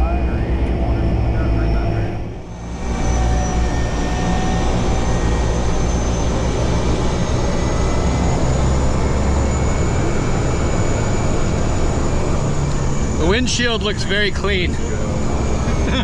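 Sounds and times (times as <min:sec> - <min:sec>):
airplane engine and propeller drone: 0:00.0 - 0:16.0
thin constant whines: 0:00.0 - 0:16.0.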